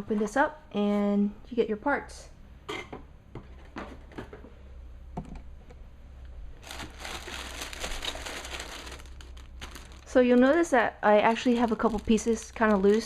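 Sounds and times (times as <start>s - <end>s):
plastic bags crinkling: 6.6s - 13.0s.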